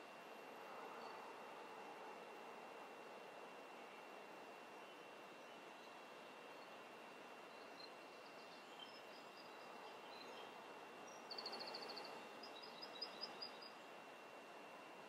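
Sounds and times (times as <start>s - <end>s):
room hiss: 0.0s - 15.0s
faint bird chirps: 7.4s - 13.9s.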